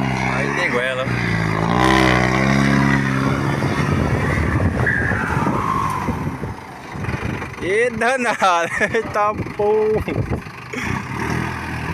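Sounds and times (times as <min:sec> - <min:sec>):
vehicle engine revving hard: 0:00.0 - 0:07.5, 0:10.8 - 0:11.9.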